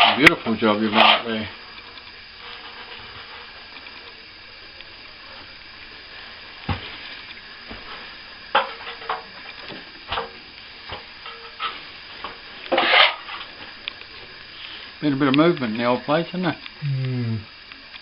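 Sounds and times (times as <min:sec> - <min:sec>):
tools scraping plaster: 0:00.9 - 0:01.3.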